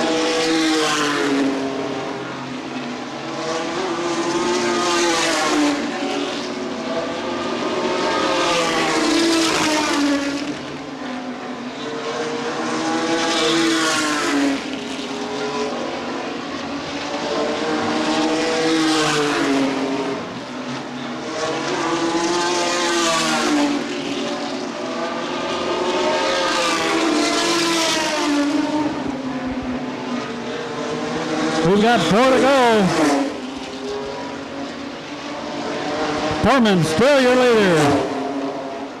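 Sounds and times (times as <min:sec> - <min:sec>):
racing trucks passing at speed: 0:12.0 - 0:39.0.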